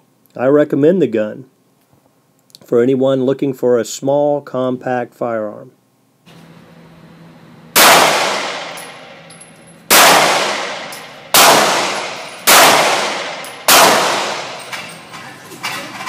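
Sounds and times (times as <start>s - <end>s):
pistol shots echoing: 7.8s - 15.0s.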